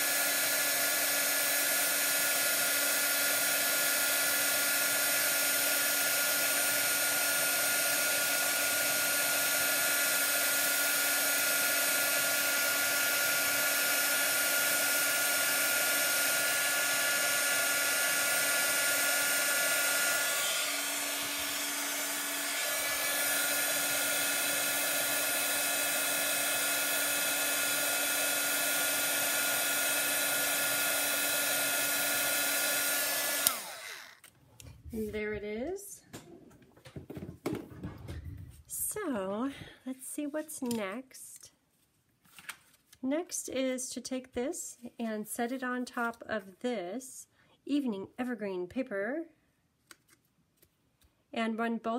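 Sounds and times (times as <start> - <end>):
heat tool fan whining: 0.0 - 34.3.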